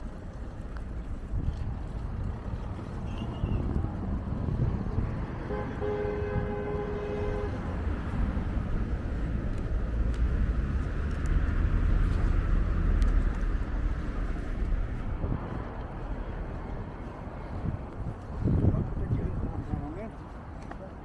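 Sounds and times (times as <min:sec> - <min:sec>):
passing vehicle rumble: 0:00.0 - 0:20.6
wind on microphone: 0:00.0 - 0:20.6
car horn: 0:05.4 - 0:07.7.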